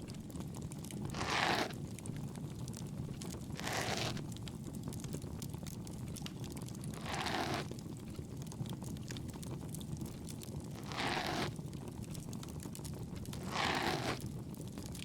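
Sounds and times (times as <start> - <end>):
ear-pick scraping strokes: 1.1 - 1.8, 3.6 - 4.2, 7.0 - 7.7, 10.8 - 11.5, 13.4 - 14.2
campfire crackling: 4.3 - 6.9.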